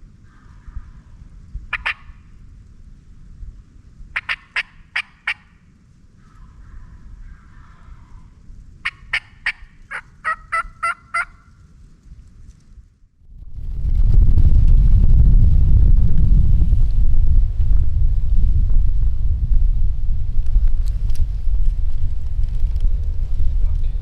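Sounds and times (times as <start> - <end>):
low wind rumble: 0.0 - 24.0
turkey rattling call: 1.7 - 2.2, 4.2 - 5.6, 8.8 - 11.6
turkey yelps: 1.7 - 2.2, 4.2 - 5.5, 6.2 - 11.6.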